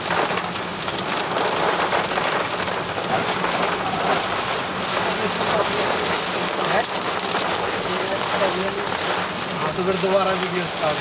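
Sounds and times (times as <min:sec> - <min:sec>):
heavy rain on car roof: 0:00.0 - 0:11.0.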